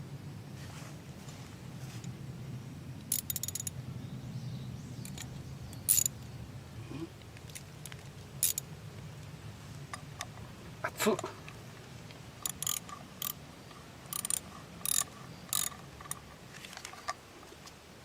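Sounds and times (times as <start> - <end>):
low steady hum: 0.0 - 18.0
metal tools clinking: 3.1 - 3.8, 5.1 - 6.2, 8.4 - 8.7.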